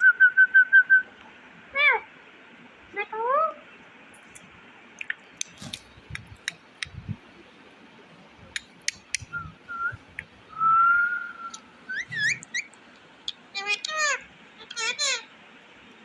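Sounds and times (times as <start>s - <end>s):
parrot whistling: 9.2s - 12.7s
parrot chirps: 11.4s - 15.3s.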